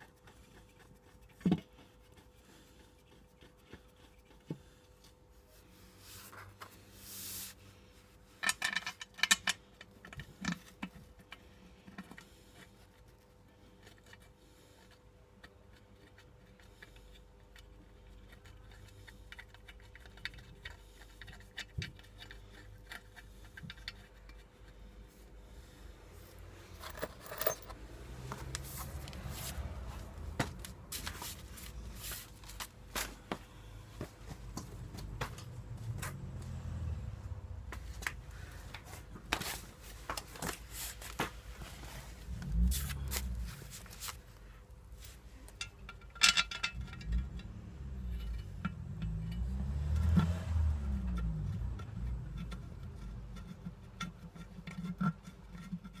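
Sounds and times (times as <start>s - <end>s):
metal tools clinking and scraping: 26.6s - 30.1s, 45.0s - 49.5s.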